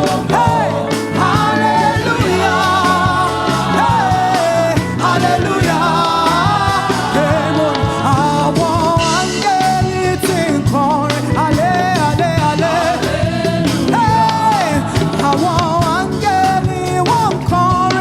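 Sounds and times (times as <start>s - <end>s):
drums keeping a steady beat: 0.0s - 18.0s
gospel band playing: 0.0s - 18.0s
person singing: 0.0s - 18.0s.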